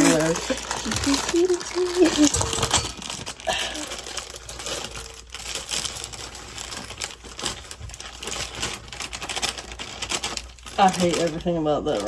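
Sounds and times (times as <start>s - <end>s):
utensil scraping mixing bowl: 0.0s - 3.4s.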